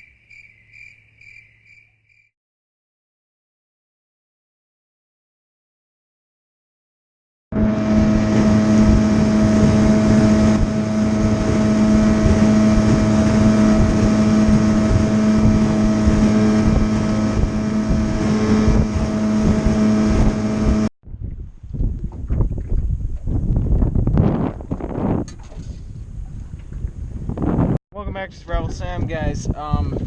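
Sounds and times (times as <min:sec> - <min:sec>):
outboard motor running: 0:07.6 - 0:20.9
wind buffeting microphone: 0:07.6 - 0:30.0.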